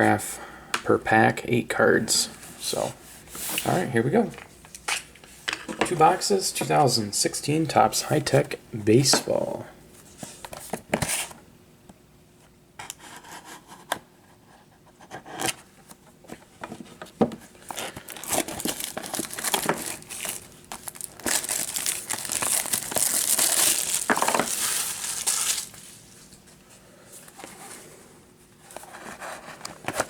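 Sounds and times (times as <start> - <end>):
plastic shrink-wrap crinkling: 17.6 - 26.4.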